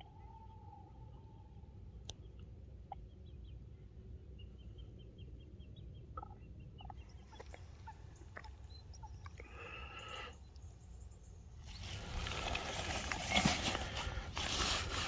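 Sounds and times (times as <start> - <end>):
low steady rumble: 0.0 - 9.4
birds chirping: 0.0 - 15.0.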